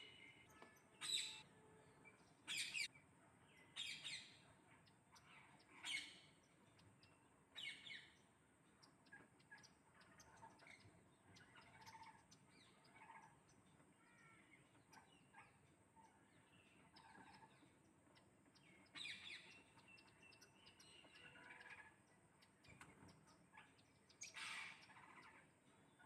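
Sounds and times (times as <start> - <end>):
parrot chirps and calls: 0.0 - 1.4, 2.5 - 4.4, 5.1 - 6.4, 7.0 - 8.2, 9.1 - 13.4, 18.8 - 26.0.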